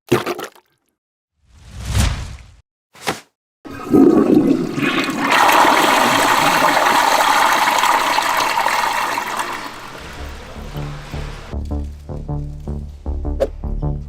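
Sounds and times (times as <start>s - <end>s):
toilet flushing: 3.7s - 11.5s.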